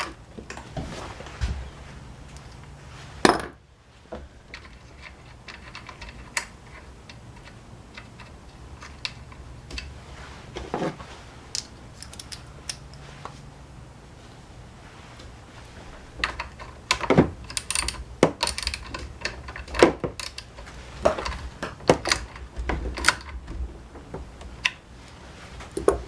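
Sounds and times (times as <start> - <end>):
hand tools clicking and clinking: 11.5 - 13.0, 16.2 - 23.4.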